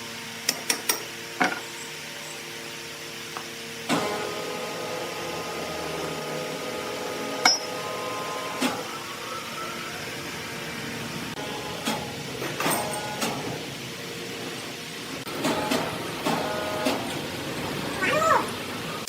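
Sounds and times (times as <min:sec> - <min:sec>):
sawmill machinery humming: 0:01.2 - 0:12.6.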